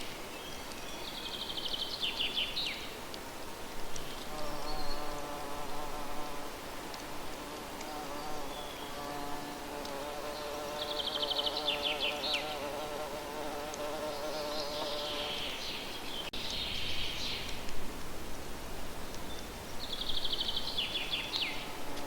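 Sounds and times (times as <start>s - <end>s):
flying insect buzzing: 4.2s - 6.6s, 7.2s - 15.6s
bird warbling song: 10.2s - 12.7s, 19.0s - 21.8s.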